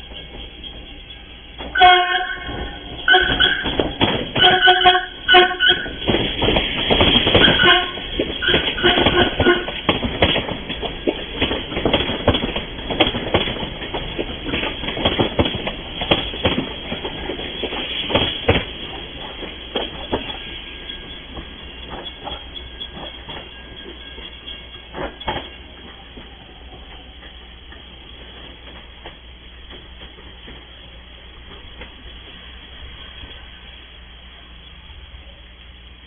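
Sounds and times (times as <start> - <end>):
train wheels clattering over rails: 0.0 - 33.5
train horn blasts: 1.7 - 6.0, 7.4 - 9.8.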